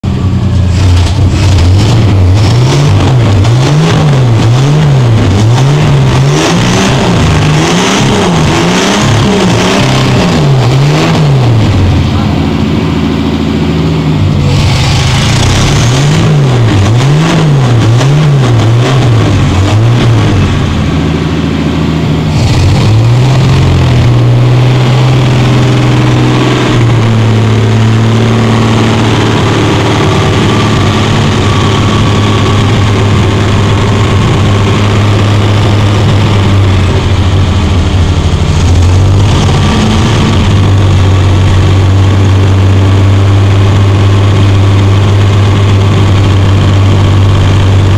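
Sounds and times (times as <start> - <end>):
car engine revving and idling: 0.0 - 47.9.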